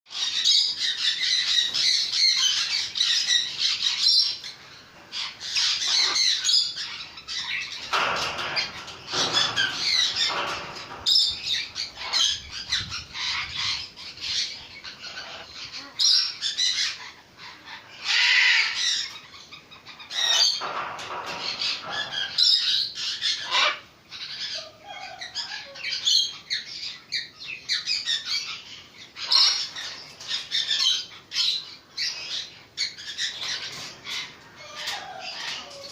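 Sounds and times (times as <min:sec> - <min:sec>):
parrot squawking: 0:15.0 - 0:16.3, 0:23.4 - 0:23.8.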